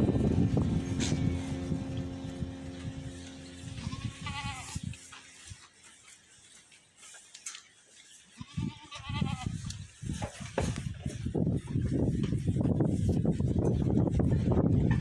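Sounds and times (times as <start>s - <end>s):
low rumbling: 0.0s - 5.0s
goat bleating: 3.5s - 4.8s, 8.4s - 9.6s.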